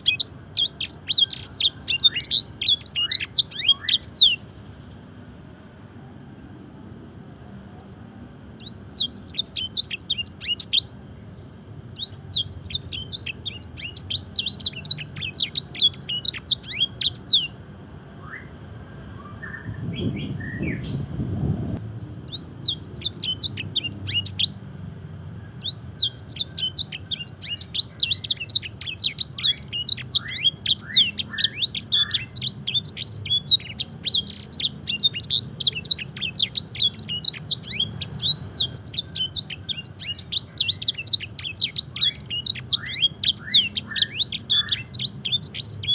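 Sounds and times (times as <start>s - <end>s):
canary singing: 0.0s - 5.2s, 8.5s - 17.6s, 19.2s - 21.0s, 22.2s - 24.8s, 25.4s - 45.9s
brief low rumble: 19.1s - 22.2s.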